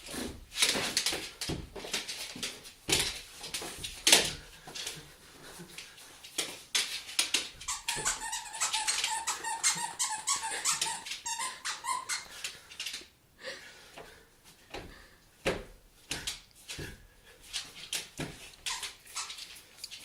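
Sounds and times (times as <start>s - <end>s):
squeaky dog toy squeaking: 7.6s - 12.4s, 18.7s - 19.5s.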